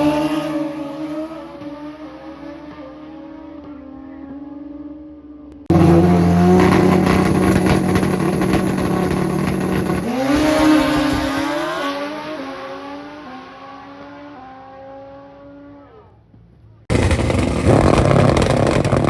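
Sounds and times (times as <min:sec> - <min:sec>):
motorcycle engine revving with crackle: 0:05.7 - 0:12.5, 0:16.9 - 0:19.0.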